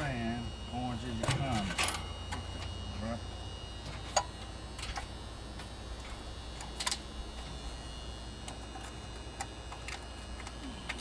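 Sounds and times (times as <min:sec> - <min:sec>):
steady low hum: 0:00.0 - 0:11.0
clicks of wires and tools: 0:03.9 - 0:07.1.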